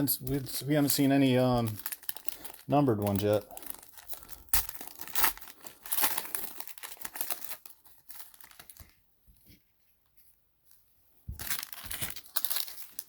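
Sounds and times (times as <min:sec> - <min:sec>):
plastic wrappers crinkling: 0:00.0 - 0:09.0, 0:11.4 - 0:13.0.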